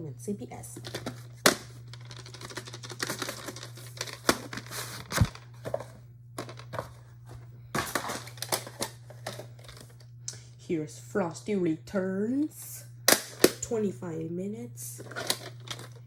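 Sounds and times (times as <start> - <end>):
low electrical hum: 0.0 - 16.0
plastic cassette case handling: 0.8 - 7.0, 7.8 - 10.1, 15.0 - 16.0.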